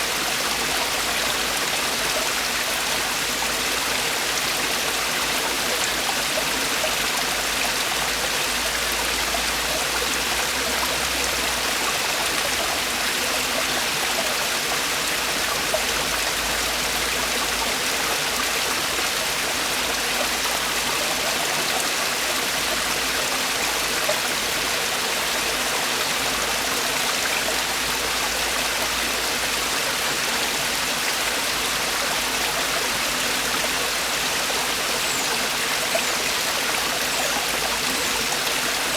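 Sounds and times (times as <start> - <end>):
stream tumbling over rocks: 0.0 - 38.9.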